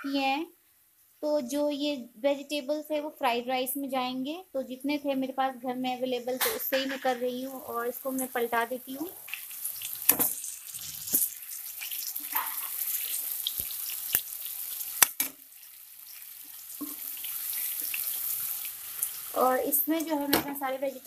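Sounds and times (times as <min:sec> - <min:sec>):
chicken sizzling in hot oil: 0:06.4 - 0:21.0.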